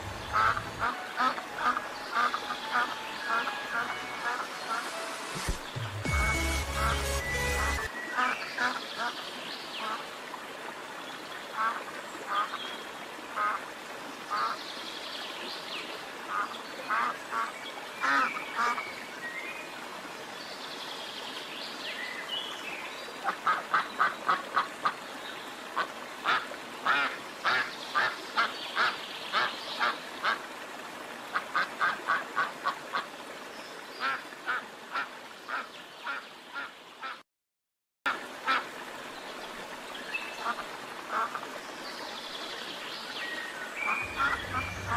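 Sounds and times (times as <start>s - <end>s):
ducks quacking: 0.0s - 5.6s, 43.9s - 44.9s.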